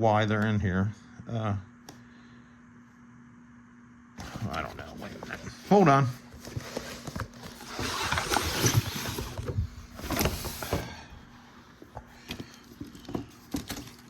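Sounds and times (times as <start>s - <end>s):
packaging rustling: 4.2s - 14.0s.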